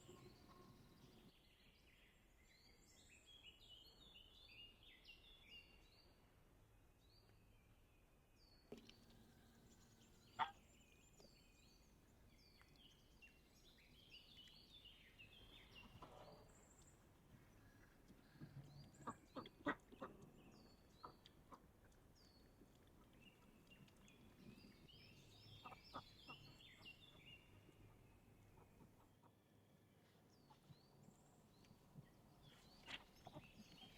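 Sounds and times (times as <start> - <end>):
birds chirping: 8.7 - 29.1.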